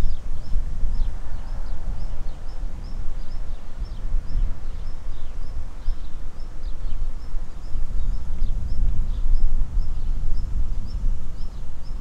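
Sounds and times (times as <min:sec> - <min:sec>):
small birds chirping: 0:00.0 - 0:12.0
wind rumbling on microphone: 0:00.0 - 0:12.0.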